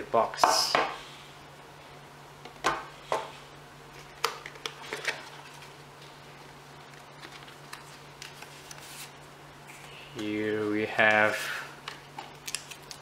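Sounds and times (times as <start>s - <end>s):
steady low hum: 0.0s - 13.0s
cardboard and paper rustling: 6.9s - 9.1s.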